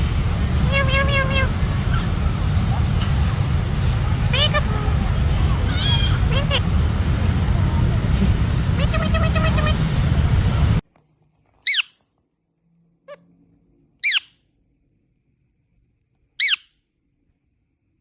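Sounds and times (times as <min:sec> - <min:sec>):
noisy background: 0:00.0 - 0:10.8
parrot screeching: 0:00.6 - 0:02.2, 0:04.2 - 0:05.0, 0:05.6 - 0:06.6, 0:08.8 - 0:09.8, 0:11.6 - 0:12.0, 0:14.0 - 0:14.4, 0:16.4 - 0:16.7.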